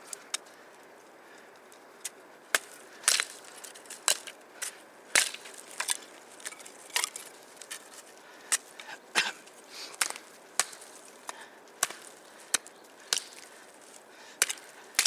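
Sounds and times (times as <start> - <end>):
dry wood cracking and snapping: 2.6 - 4.4, 5.1 - 8.9, 10.0 - 14.7.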